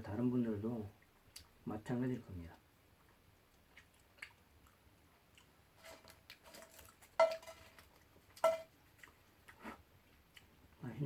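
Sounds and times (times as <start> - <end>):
metal utensils clinking cookware: 5.8 - 7.8, 8.4 - 8.7.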